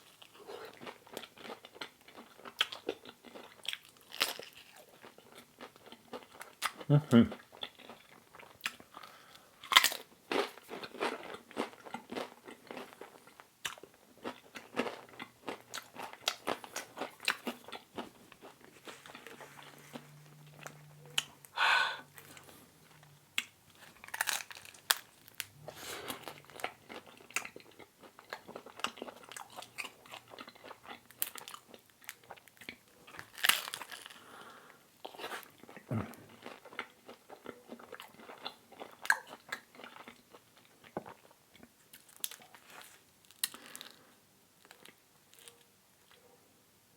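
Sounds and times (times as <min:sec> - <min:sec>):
crunchy pizza bites: 0:00.7 - 0:21.5, 0:23.3 - 0:34.3
chewing with wet mouth clicks: 0:00.8 - 0:09.1, 0:22.2 - 0:34.1, 0:35.0 - 0:42.6.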